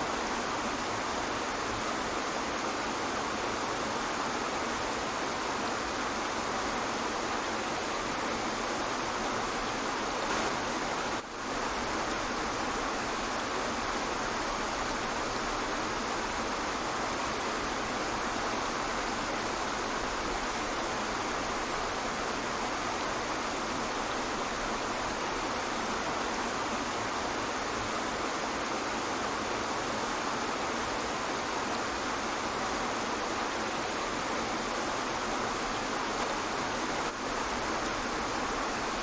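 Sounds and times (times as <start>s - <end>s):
waterfall: 0.0s - 39.0s.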